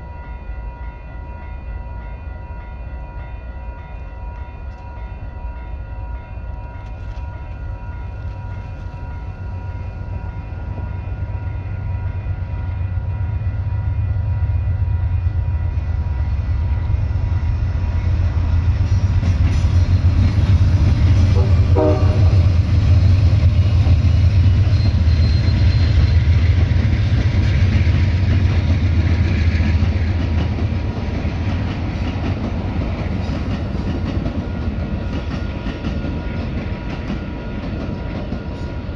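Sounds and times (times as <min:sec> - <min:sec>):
passing train cars: 0:00.0 - 0:38.9
diesel locomotive rumble: 0:07.0 - 0:38.9
locomotive horn: 0:21.3 - 0:22.6.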